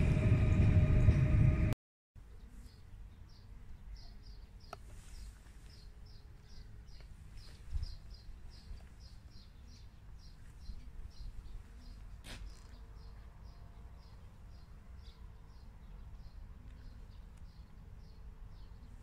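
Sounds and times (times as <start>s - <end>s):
low background rumble: 0.0s - 1.8s.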